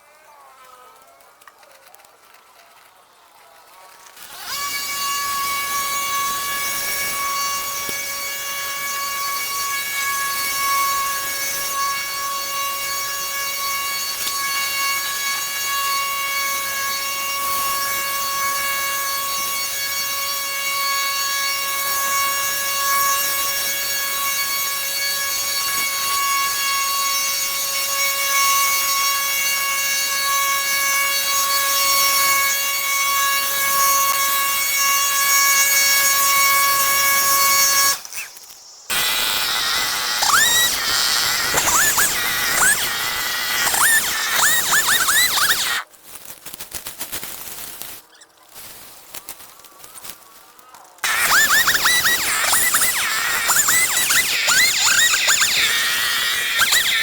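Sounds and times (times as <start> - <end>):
hiss: 37.3 - 45.8, 51.0 - 57.0
high-speed motor whining: 37.4 - 45.8, 51.0 - 57.0.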